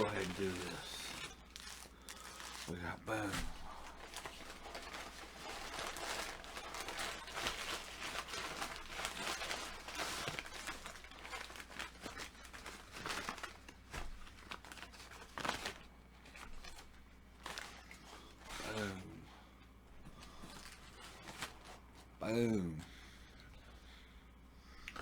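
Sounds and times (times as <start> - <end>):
packaging tearing: 0.0 - 19.0
food packaging crinkling: 0.0 - 19.1, 20.0 - 22.1.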